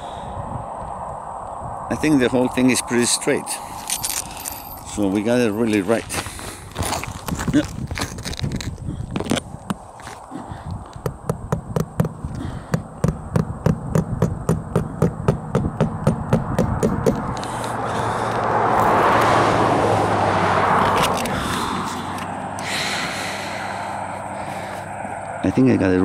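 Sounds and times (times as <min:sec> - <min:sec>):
rushing noise with low hum: 0:00.0 - 0:26.0
hammer driving a nail into wood: 0:11.2 - 0:17.2.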